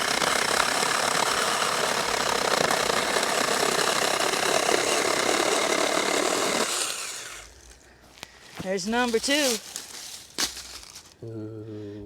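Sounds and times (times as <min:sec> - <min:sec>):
electric chainsaw cutting wood: 0:00.0 - 0:07.6.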